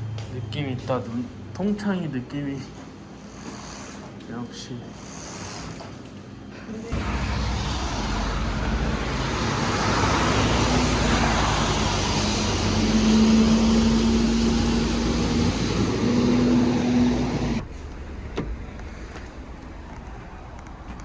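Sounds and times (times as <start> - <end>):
mechanical rushing noise with hum: 6.9 - 19.9.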